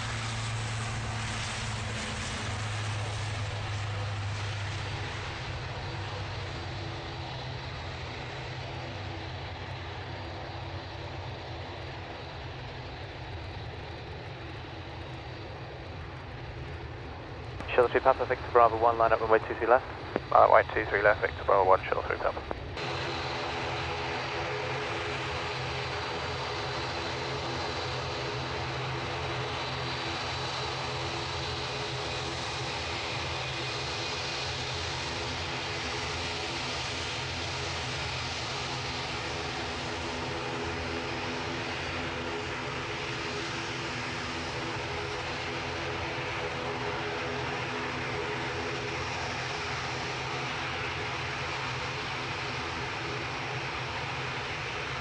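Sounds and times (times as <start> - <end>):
airliner engines humming: 0.0 - 55.0
faint high whine: 17.4 - 32.7.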